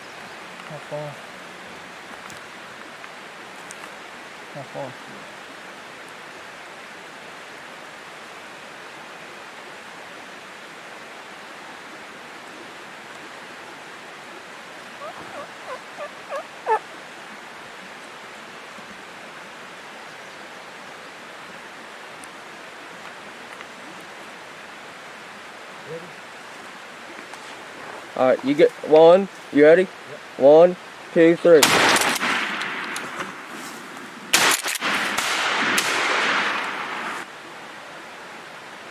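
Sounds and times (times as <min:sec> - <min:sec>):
creek rushing: 0:00.0 - 0:38.9
turkey gobbling: 0:14.8 - 0:17.0.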